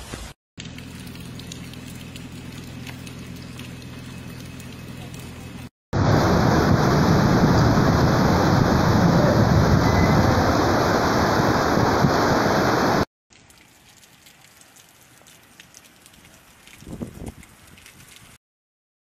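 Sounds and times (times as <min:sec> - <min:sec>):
heavy rain on pavement: 0:06.0 - 0:18.4.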